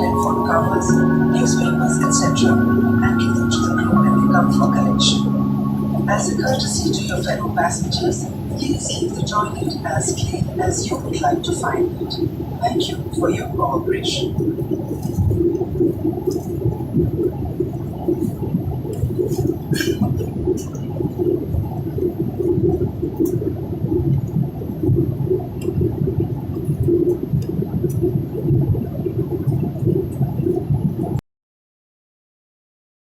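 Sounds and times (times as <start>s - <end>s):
airliner cabin engine rumble: 0.0s - 31.1s.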